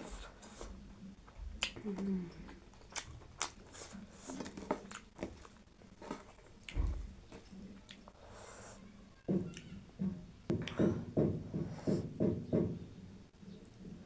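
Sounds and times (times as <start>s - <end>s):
person chewing food: 0.0s - 8.3s
wet mouth clicks and smacks: 1.6s - 1.8s.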